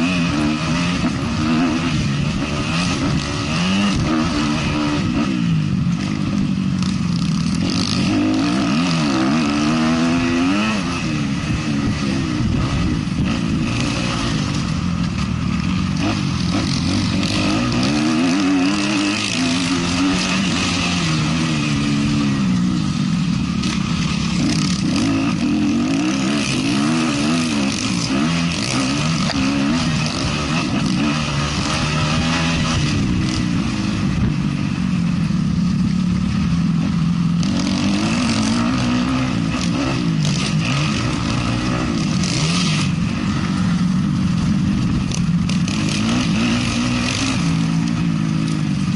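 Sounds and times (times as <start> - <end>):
motocross bike engine revving: 0.0 - 48.9.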